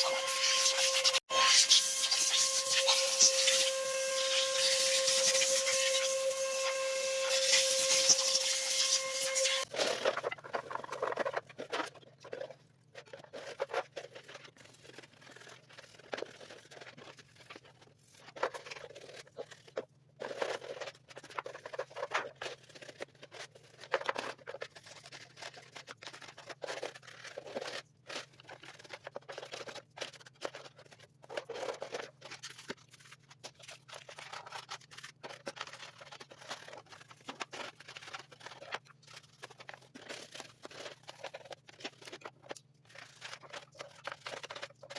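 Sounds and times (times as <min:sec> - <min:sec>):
scratches and rustles: 0:02.0 - 0:44.9.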